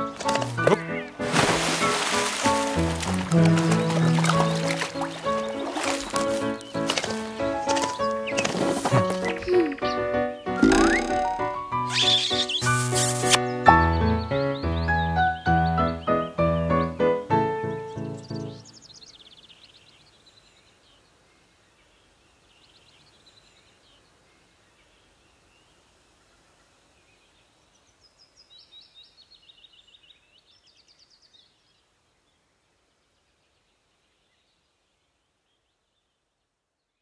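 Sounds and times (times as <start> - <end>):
bird singing high chirps: 9.2 - 13.4.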